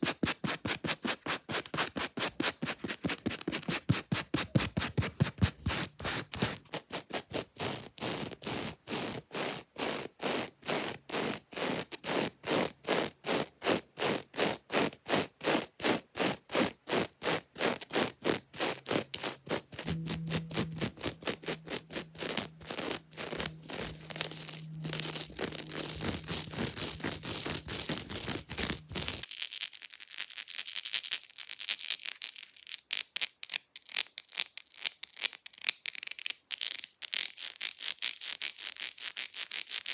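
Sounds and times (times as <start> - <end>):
fingernails scratching hard object: 17.6 - 29.2.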